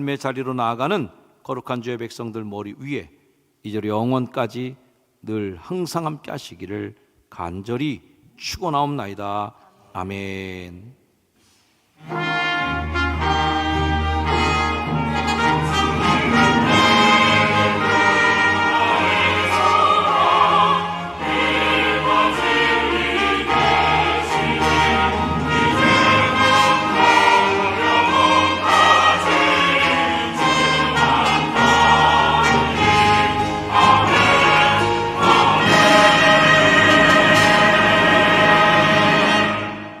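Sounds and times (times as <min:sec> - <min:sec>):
choir singing: 0:12.0 - 0:40.0
orchestra playing: 0:12.0 - 0:40.0.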